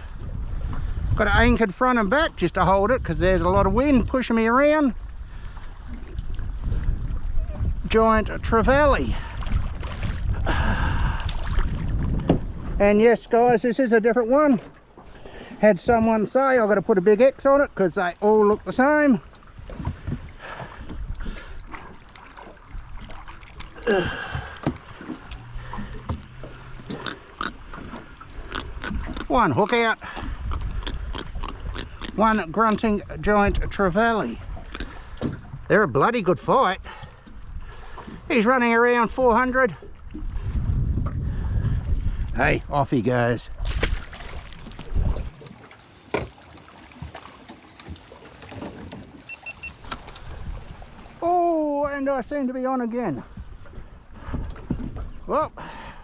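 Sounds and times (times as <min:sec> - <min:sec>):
water slapping against hull: 0:00.0 - 0:16.2, 0:18.2 - 0:32.9, 0:34.0 - 0:36.1, 0:43.5 - 0:51.2, 0:53.3 - 0:55.3
knocks and clicks in a boat: 0:11.2 - 0:15.2, 0:18.0 - 0:42.7, 0:44.6 - 0:51.2, 0:53.3 - 0:55.3
fish grunting: 0:23.6 - 0:32.4, 0:34.5 - 0:35.2, 0:43.9 - 0:51.2
boat knocking: 0:43.9 - 0:51.2
short high beeps: 0:49.2 - 0:50.2.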